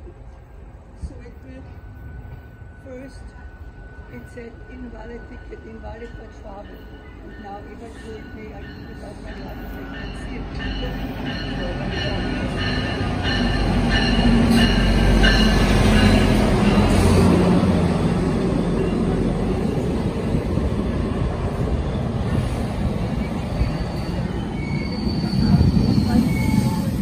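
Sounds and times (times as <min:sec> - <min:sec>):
high wheel and brake squeals: 0:23.2 - 0:27.0.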